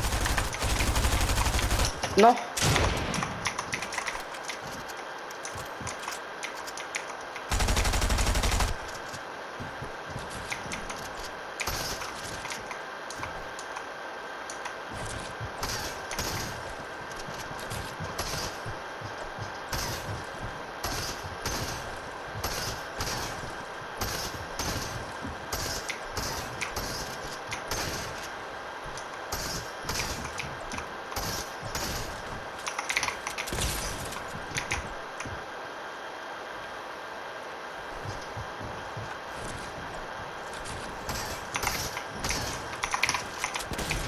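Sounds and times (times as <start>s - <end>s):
video game automatic gunfire: 0.0s - 4.7s, 7.5s - 9.2s, 17.6s - 28.2s
game background audio: 0.0s - 44.0s.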